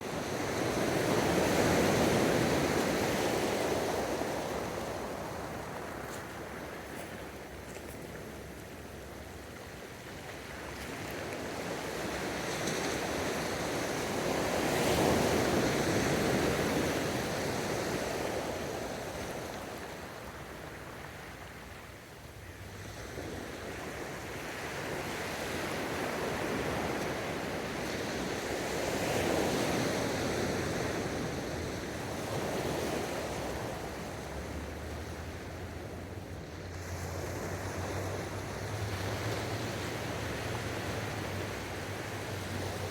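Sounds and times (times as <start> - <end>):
ocean waves breaking: 30.4 - 42.9.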